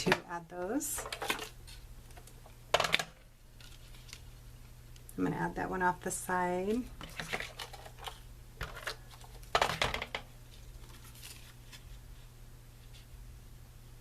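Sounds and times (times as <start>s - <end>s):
low electrical hum: 0.0s - 14.0s
rustling scrape of paper: 10.6s - 12.3s.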